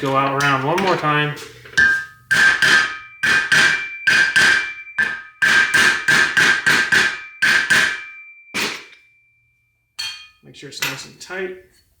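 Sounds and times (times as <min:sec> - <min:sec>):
hammer striking metal: 0:01.8 - 0:09.2, 0:10.0 - 0:11.1.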